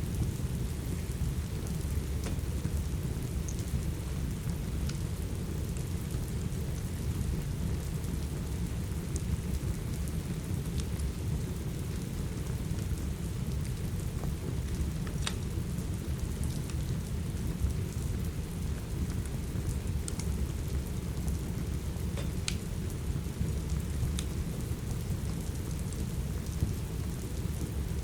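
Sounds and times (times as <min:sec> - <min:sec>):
steady rain: 0:00.0 - 0:28.0
wood fire popping: 0:00.7 - 0:05.6, 0:12.2 - 0:27.8.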